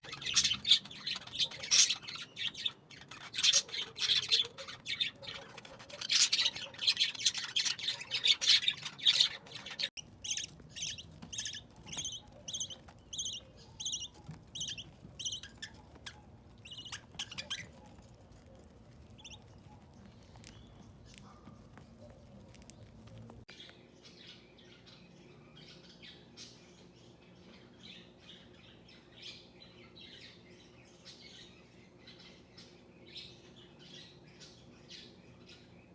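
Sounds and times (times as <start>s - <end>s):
budgerigar chicks chirping: 0.0s - 23.5s.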